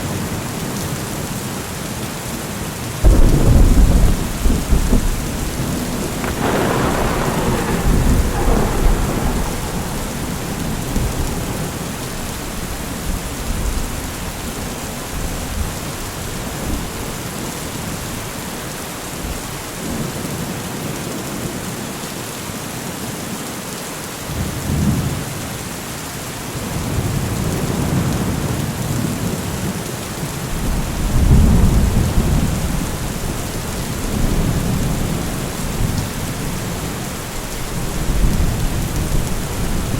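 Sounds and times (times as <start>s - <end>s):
heavy rain: 0.0s - 39.9s
thunder clap and rumble: 3.0s - 18.5s, 26.7s - 39.9s.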